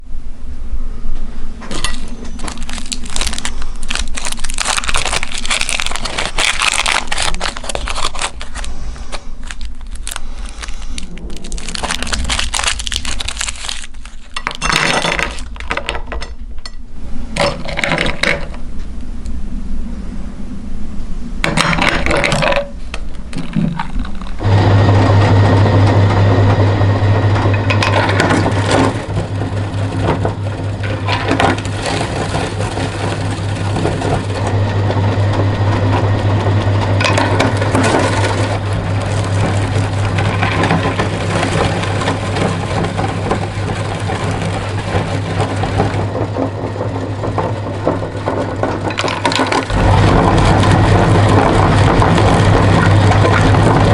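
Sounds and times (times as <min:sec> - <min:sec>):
hard candy clattering: 0:01.7 - 0:16.3, 0:17.4 - 0:18.6, 0:21.4 - 0:24.5, 0:27.5 - 0:34.5, 0:36.8 - 0:53.9
meat grinder motor humming: 0:02.1 - 0:08.8, 0:24.2 - 0:53.9.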